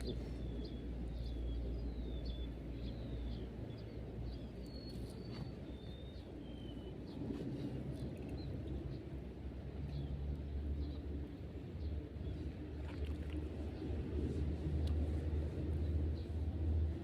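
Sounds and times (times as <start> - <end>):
birds chirping: 0.0 - 8.5
low outdoor rumble: 0.0 - 17.0.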